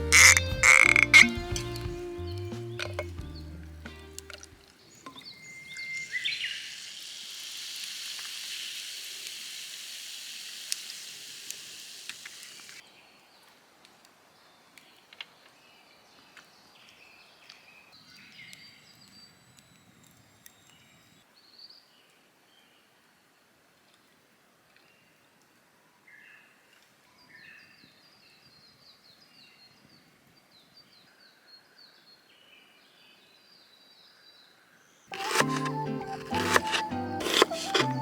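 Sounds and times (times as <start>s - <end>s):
food sizzling in a frying pan: 5.7s - 12.8s.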